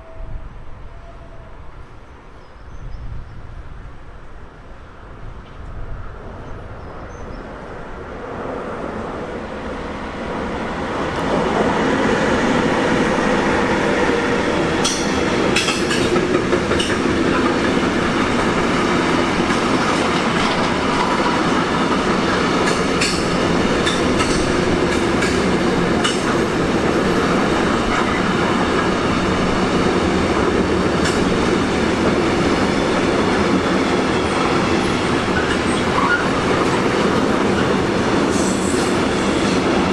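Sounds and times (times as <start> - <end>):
train passing: 0.0 - 39.9
train wheels clattering over rails: 14.1 - 39.9
wheel squeals: 34.1 - 36.4.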